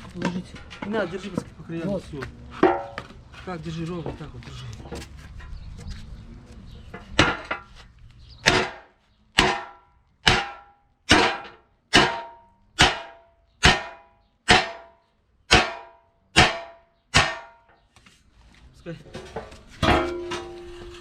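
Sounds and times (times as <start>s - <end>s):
hammer clanging on steel: 8.4s - 17.8s, 19.2s - 21.0s.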